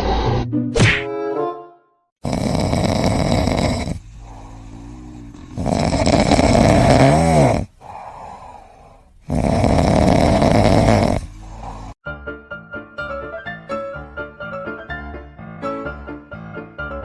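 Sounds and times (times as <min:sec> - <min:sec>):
pet snoring loudly: 0:02.2 - 0:12.0
piano music: 0:12.0 - 0:17.0.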